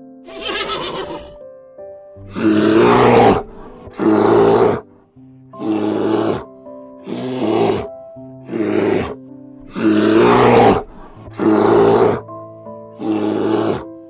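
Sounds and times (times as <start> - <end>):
background music with held notes: 0.0 - 14.0
deep animal roars: 2.3 - 4.8, 5.6 - 6.5, 7.1 - 7.9, 8.5 - 12.3, 13.0 - 13.9.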